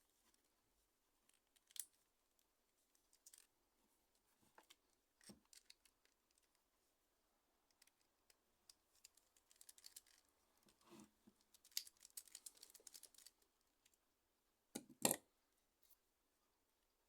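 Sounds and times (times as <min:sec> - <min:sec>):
small hard parts clicking and scraping: 0:03.0 - 0:03.5, 0:04.6 - 0:06.6, 0:07.7 - 0:13.4.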